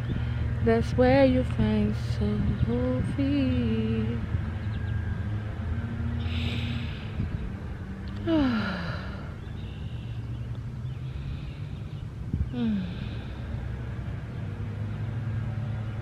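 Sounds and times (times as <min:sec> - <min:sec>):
steady low hum: 0:00.0 - 0:16.0
woman breathing in deeply: 0:06.2 - 0:07.4, 0:08.2 - 0:09.9, 0:10.9 - 0:13.6
woman sighing: 0:08.2 - 0:09.4, 0:12.5 - 0:13.4.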